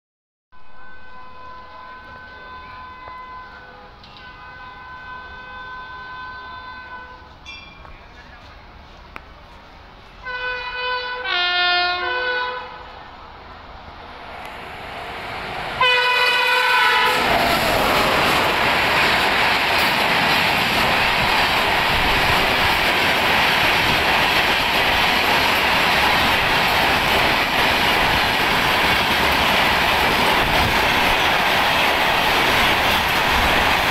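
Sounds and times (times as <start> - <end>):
locomotive horn blasts: 0.6 - 7.4, 10.2 - 12.9, 15.8 - 17.3
passenger coaches rushing past: 14.0 - 33.9.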